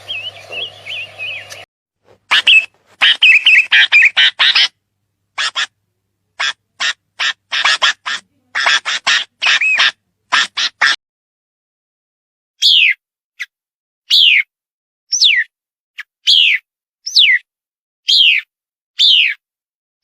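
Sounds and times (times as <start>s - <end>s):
bird giving harsh calls: 0.0s - 4.8s, 5.4s - 5.8s, 6.4s - 11.0s, 14.1s - 14.5s, 16.2s - 17.4s, 18.1s - 19.4s.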